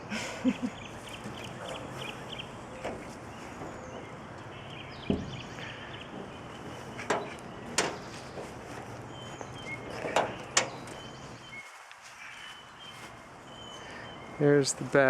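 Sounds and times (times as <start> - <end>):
outdoor background noise: 0.0 - 15.0
sharp knocks and clicks: 2.8 - 8.6, 9.4 - 11.0.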